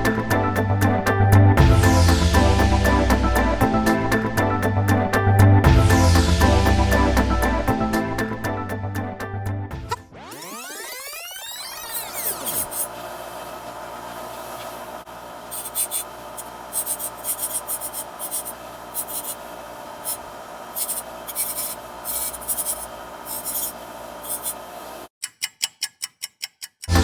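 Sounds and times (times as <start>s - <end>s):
file rasping on saw blade: 11.8s - 12.9s, 15.4s - 24.8s
steady hum: 12.2s - 25.1s.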